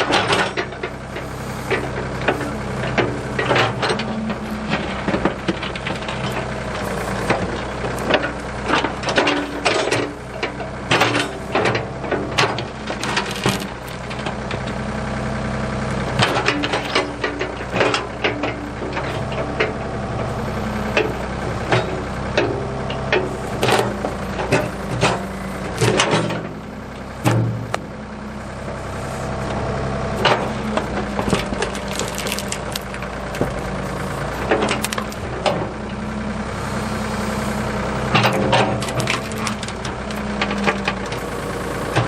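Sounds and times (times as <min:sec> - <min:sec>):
diesel engine running: 0:00.0 - 0:42.0
sharp knocks and clanks: 0:20.9 - 0:27.9.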